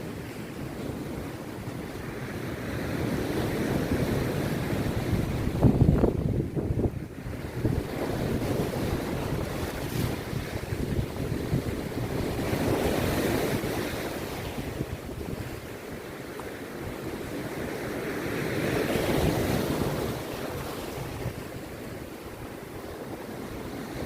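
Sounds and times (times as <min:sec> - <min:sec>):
sea surf breaking on beach: 0:00.0 - 0:24.0
wind rumbling on microphone: 0:00.0 - 0:24.0.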